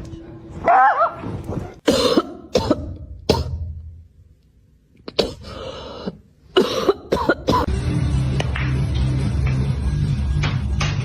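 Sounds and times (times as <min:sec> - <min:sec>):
person coughing: 0:01.8 - 0:03.7, 0:05.1 - 0:07.7.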